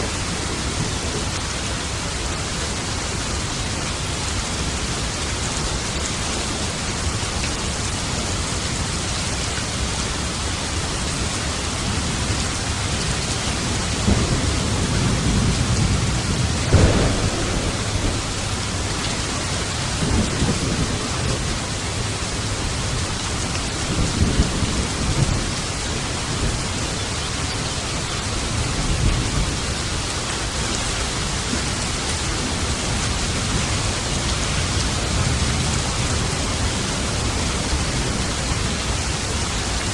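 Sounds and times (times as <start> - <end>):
steady rain: 0.0 - 39.9
thunder rumbling: 13.2 - 27.0.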